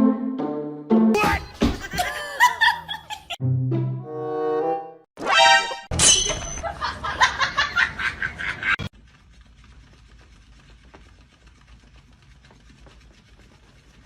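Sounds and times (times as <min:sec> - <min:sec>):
person laughing: 0:01.3 - 0:03.4, 0:06.6 - 0:08.8.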